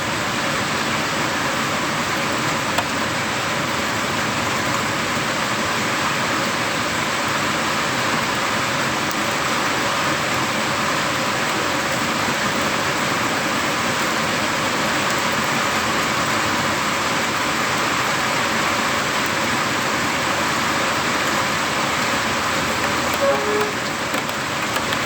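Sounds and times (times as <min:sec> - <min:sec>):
heavy rain downpour: 0:00.0 - 0:25.0
short tone: 0:23.1 - 0:24.0.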